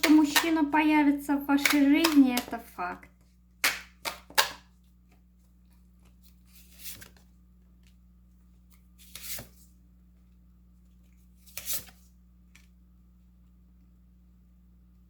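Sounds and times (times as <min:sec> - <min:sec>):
cards rustling: 0:03.6 - 0:08.0, 0:08.6 - 0:09.7, 0:10.9 - 0:12.7.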